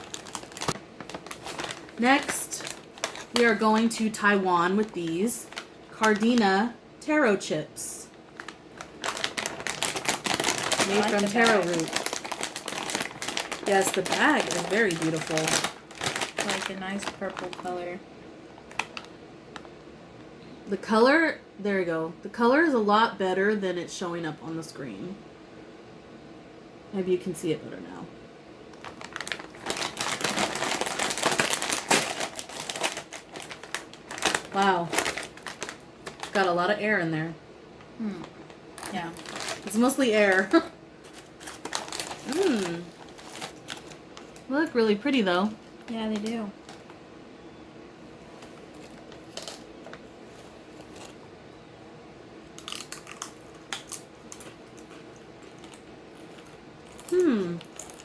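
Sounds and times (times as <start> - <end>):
chip bag crinkling and tearing: 0.0 - 6.6, 8.2 - 17.9, 18.6 - 19.1, 28.7 - 36.8, 38.2 - 47.0, 48.3 - 51.2, 52.5 - 58.0
faint steady hum: 0.0 - 58.0.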